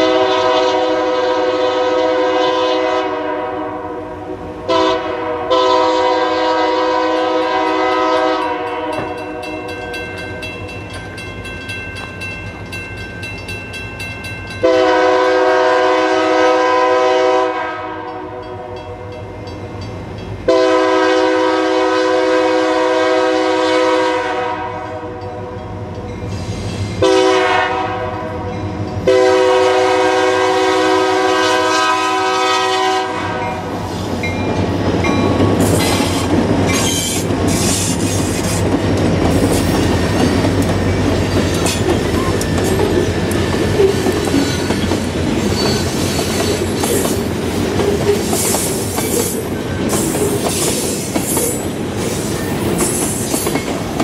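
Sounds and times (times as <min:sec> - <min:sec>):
train horn blasts: 0:00.0 - 0:09.8, 0:14.6 - 0:19.0, 0:20.4 - 0:25.6, 0:27.0 - 0:33.8
train passing with heavy rumble: 0:00.0 - 0:54.0
wheels clacking over rail joints: 0:34.2 - 0:51.8, 0:52.4 - 0:54.0
wheel squeal: 0:35.7 - 0:38.6, 0:43.8 - 0:47.1.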